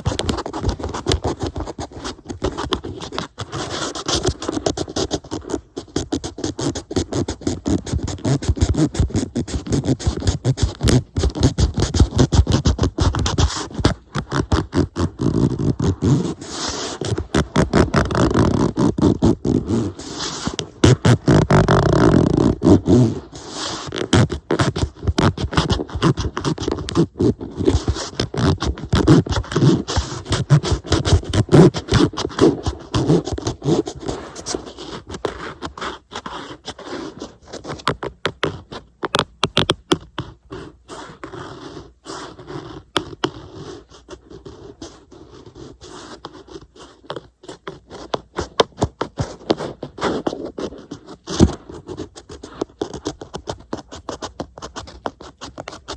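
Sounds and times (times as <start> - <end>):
fingernails scratching on glass: 0.0 - 55.9.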